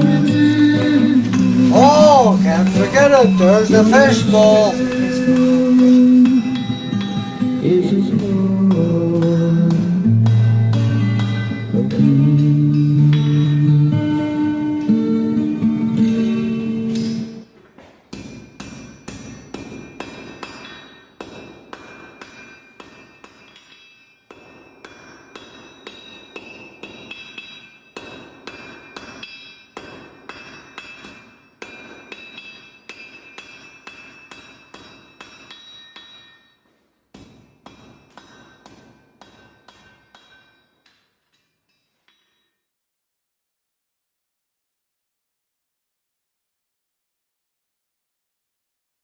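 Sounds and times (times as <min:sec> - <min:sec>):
hammer striking anvil: 0:00.0 - 0:07.5, 0:08.1 - 0:13.9, 0:18.1 - 0:42.5.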